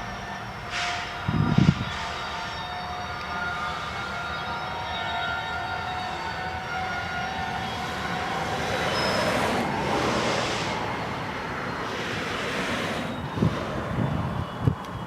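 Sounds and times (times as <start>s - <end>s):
train cars rattling past: 0.0s - 15.0s.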